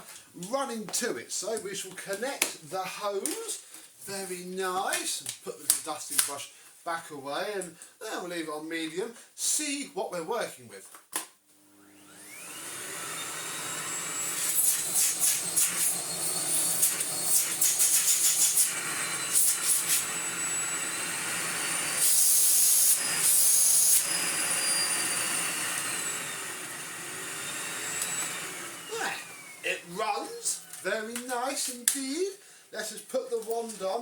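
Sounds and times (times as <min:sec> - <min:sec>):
vacuum cleaner motor running: 0:11.7 - 0:31.3.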